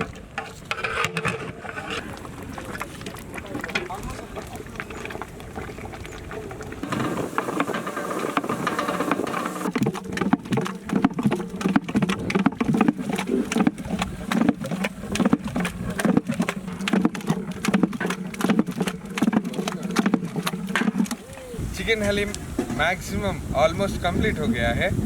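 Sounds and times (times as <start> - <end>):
wet slaps and knocks in pot: 6.8 - 21.4.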